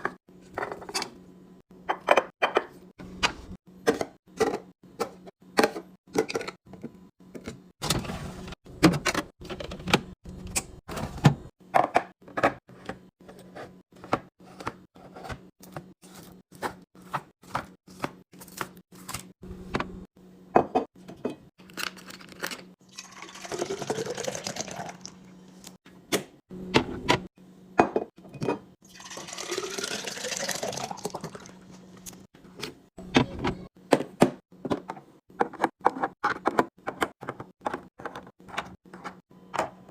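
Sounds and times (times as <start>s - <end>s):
liquid pouring into container: 22.8s - 25.3s, 28.8s - 31.8s.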